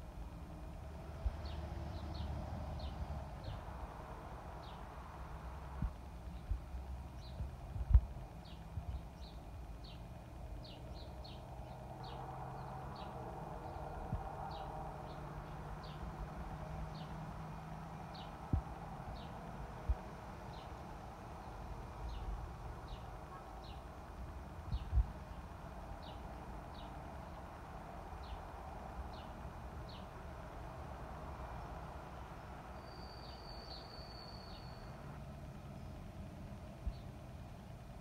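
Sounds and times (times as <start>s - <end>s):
outdoor background hum: 0.0s - 38.0s
dull low thumps: 7.3s - 8.2s
bird chip calls: 32.8s - 35.0s.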